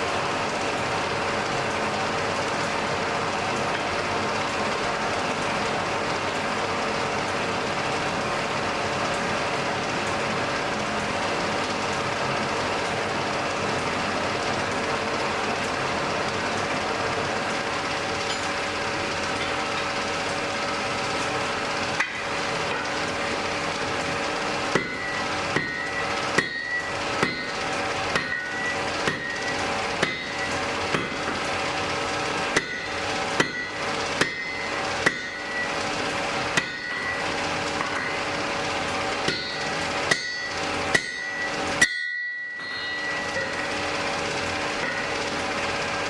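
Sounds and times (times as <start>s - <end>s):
hammer striking anvil: 24.7s - 27.6s, 28.2s - 31.4s, 32.6s - 35.7s, 36.6s - 38.3s, 39.2s - 43.7s, 44.8s - 45.2s.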